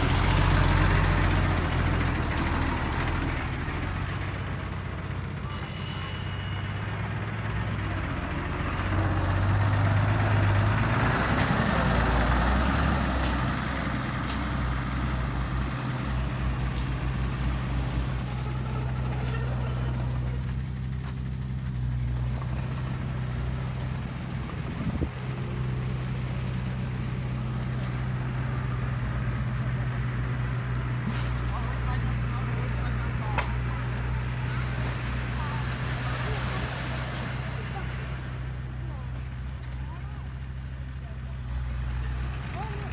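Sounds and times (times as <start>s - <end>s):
truck diesel engine running: 0.0s - 42.9s.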